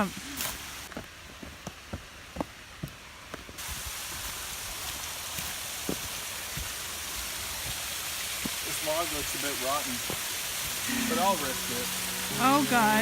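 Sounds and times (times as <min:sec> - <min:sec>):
waterfall rushing: 0:03.6 - 0:13.0.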